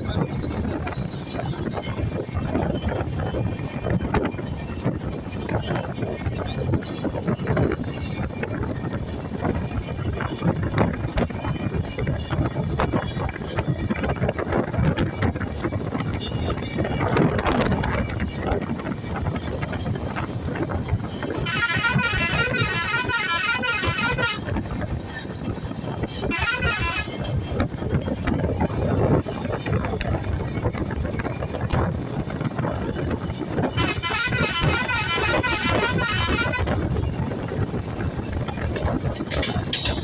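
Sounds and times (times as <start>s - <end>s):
engine and road noise: 0.0s - 40.0s
vehicle horn warbling: 21.4s - 24.7s, 26.2s - 27.5s, 33.6s - 37.6s, 38.5s - 40.0s.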